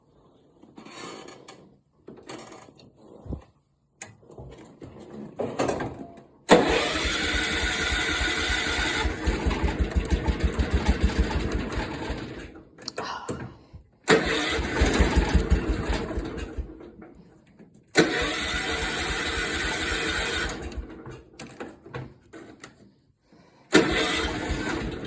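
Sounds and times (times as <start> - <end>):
lawn tractor engine starting: 5.8 - 12.8, 14.1 - 22.7, 23.7 - 25.0.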